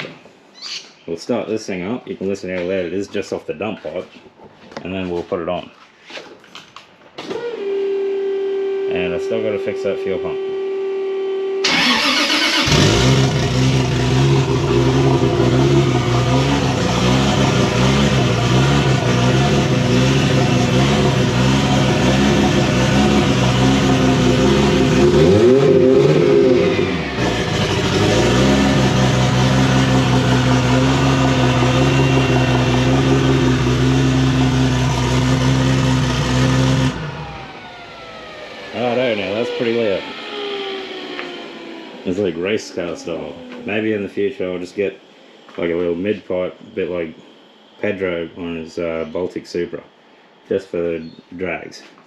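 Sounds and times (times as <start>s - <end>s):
car engine cranking and idling: 11.6s - 44.0s
steady hum: 36.8s - 51.0s.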